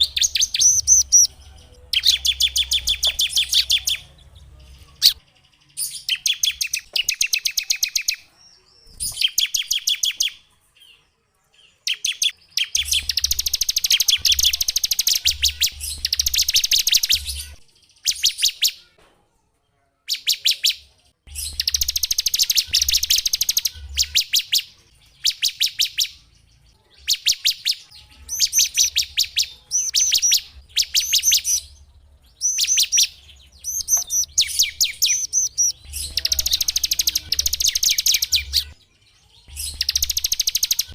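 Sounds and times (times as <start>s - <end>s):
songbird singing fast trills: 0.0s - 4.1s, 11.9s - 18.7s, 20.2s - 26.2s, 27.0s - 38.8s, 39.4s - 40.9s.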